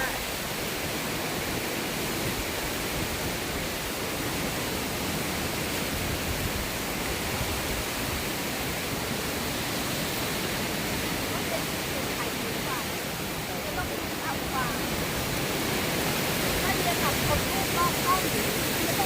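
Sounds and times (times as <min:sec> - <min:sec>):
strong wind on microphone: 0:00.0 - 0:19.0.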